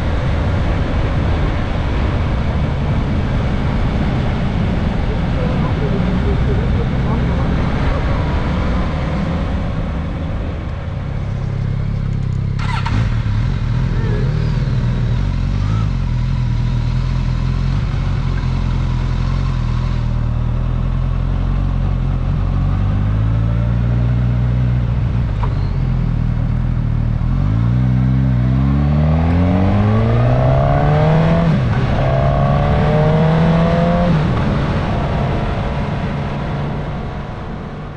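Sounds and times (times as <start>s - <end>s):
motorcycle engine revving: 11.1s - 37.6s.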